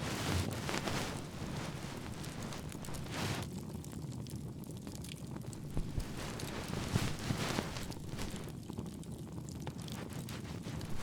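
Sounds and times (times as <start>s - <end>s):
fire crackles and pops: 0.0s - 11.0s
bonfire rumbling: 0.1s - 3.6s, 5.3s - 9.2s.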